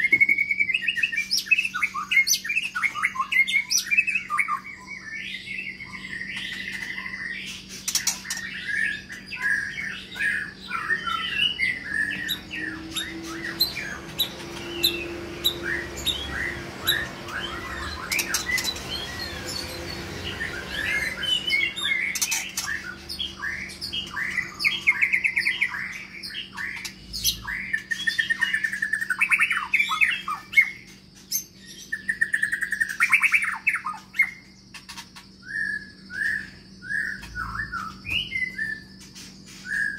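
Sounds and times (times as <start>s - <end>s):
bird singing chirps and trills: 0.0s - 39.9s
steady low hum: 0.0s - 39.9s.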